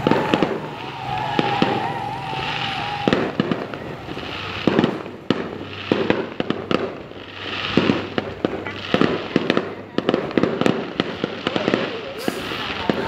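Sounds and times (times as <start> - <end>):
wavering whistle: 0.0 - 4.3
crackling hiss: 0.0 - 13.0
firework bangs and pops: 0.0 - 13.0.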